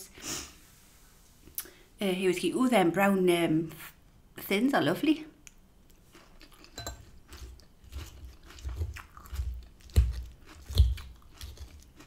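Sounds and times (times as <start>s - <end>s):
chewing crisp salad: 5.9s - 12.0s.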